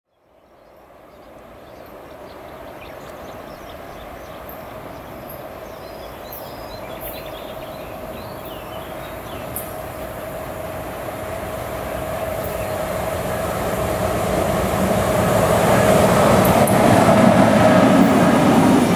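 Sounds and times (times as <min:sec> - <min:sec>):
birds chirping: 0:00.4 - 0:10.4, 0:11.5 - 0:14.4
electric locomotive humming: 0:00.8 - 0:18.9.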